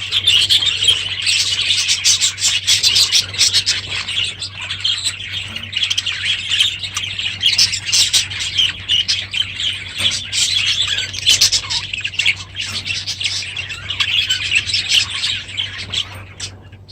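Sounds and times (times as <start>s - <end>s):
budgerigars chattering and squawking: 0.0s - 16.9s
low steady hum: 0.0s - 16.9s.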